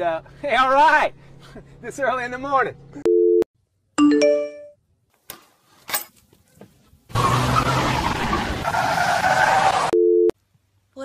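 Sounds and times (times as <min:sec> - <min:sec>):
road and tyre rush: 0:05.9 - 0:10.0.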